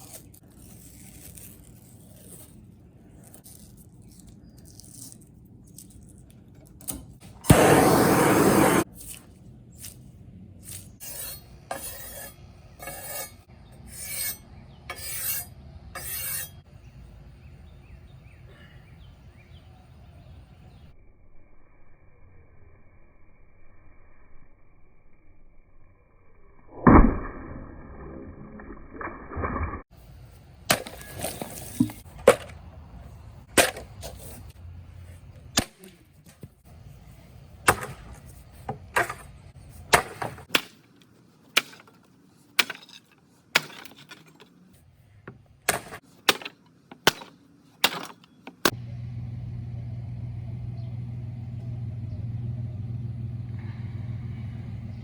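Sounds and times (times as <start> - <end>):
steady low hum: 48.7 - 55.0.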